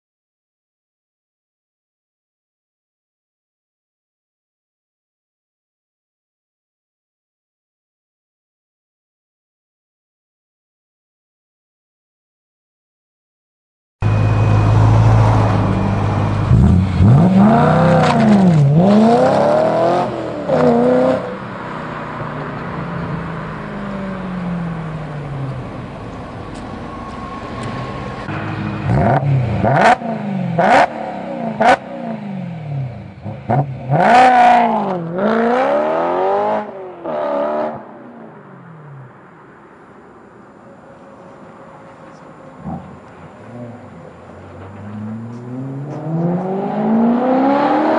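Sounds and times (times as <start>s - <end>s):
car engine revving: 14.0s - 38.0s, 41.2s - 47.9s.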